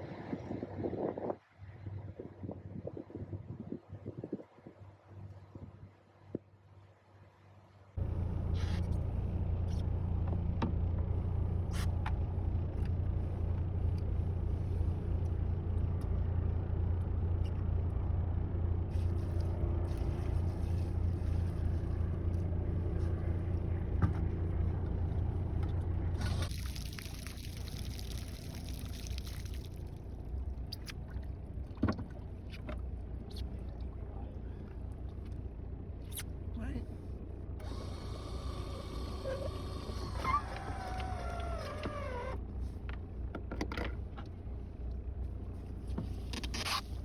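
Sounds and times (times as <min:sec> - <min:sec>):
boat engine drone: 0:08.0 - 0:26.6, 0:27.8 - 0:42.9.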